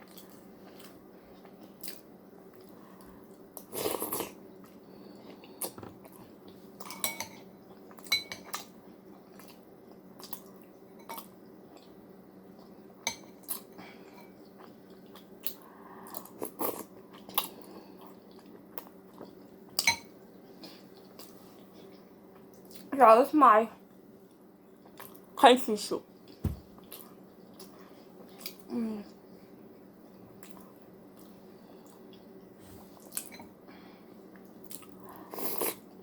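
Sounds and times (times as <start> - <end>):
low steady hum: 0.0 - 36.0
chewing: 7.7 - 12.8, 34.3 - 35.8.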